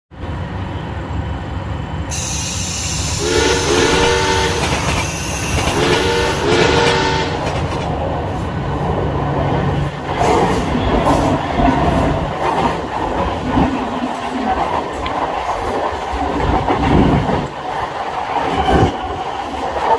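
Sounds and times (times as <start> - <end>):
rumble of running trains: 0.1 - 19.9
train wheels clattering on rails: 2.1 - 19.9
train horn blasts: 3.1 - 7.5.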